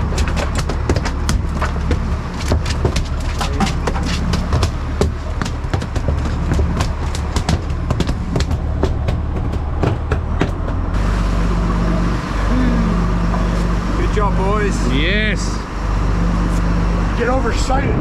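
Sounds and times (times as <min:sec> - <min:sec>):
fish thrashing on boat deck: 0:00.0 - 0:14.0
boat engine drone: 0:00.0 - 0:18.0.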